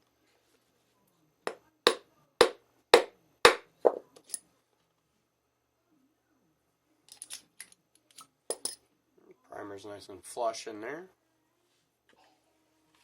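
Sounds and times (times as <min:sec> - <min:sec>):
mallet striking hand tool: 0:01.9 - 0:04.0.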